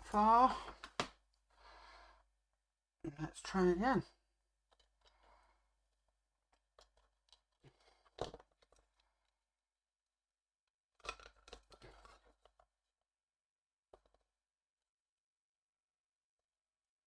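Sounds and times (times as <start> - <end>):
model parts clicking and rustling: 11.0 - 12.6.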